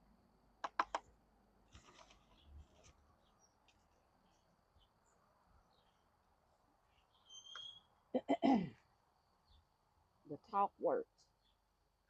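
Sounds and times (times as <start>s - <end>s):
faint bird chirps: 2.2s - 6.1s, 6.8s - 8.2s, 9.1s - 9.8s, 11.2s - 11.7s.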